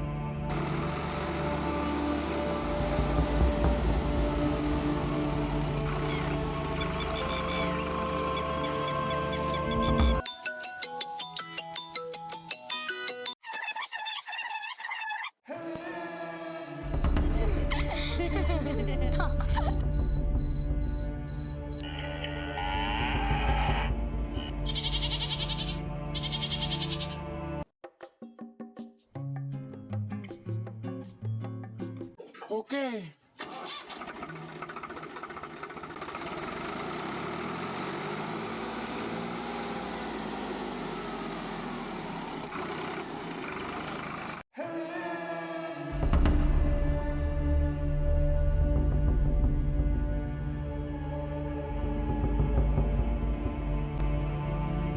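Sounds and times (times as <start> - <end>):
small motor running: 0.5 - 9.0, 34.0 - 44.4
high pulsing chirp: 0.6 - 10.2, 15.5 - 21.8.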